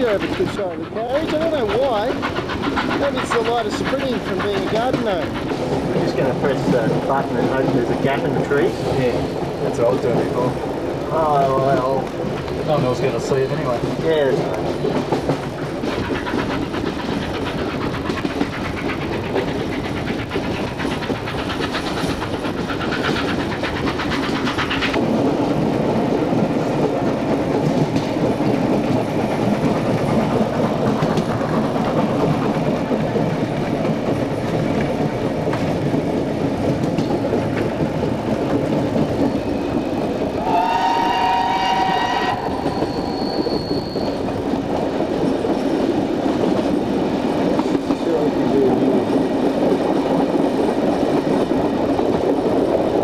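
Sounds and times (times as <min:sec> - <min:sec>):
rhythmic clickety-clack: 0:00.0 - 0:53.0
train rumbling on rails: 0:00.0 - 0:53.0
train whistle chord: 0:40.4 - 0:42.7.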